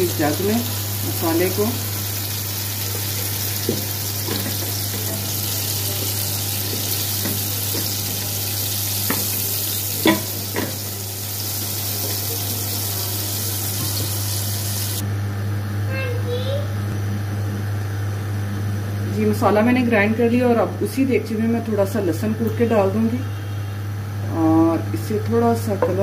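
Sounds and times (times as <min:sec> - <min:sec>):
masala sizzling in hot oil: 0:00.0 - 0:15.0.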